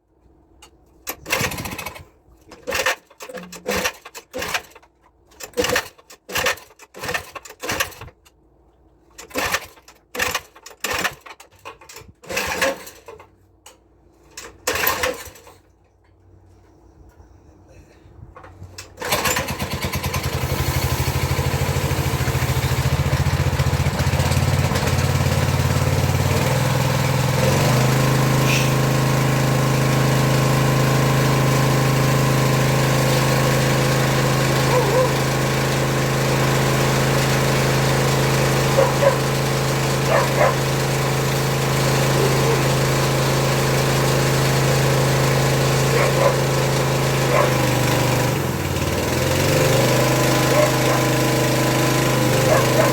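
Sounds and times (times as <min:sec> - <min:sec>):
petrol engine running: 0:19.0 - 0:52.9.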